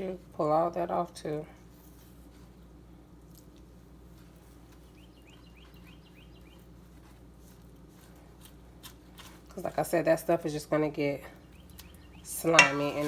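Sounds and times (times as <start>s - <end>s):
low room hum: 0.0s - 13.0s
bird chirping: 4.8s - 6.7s, 11.4s - 13.0s.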